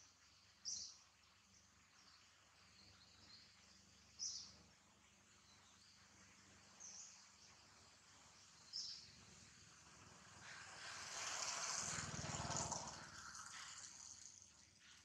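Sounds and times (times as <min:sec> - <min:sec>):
bird chirping: 0:00.6 - 0:04.6.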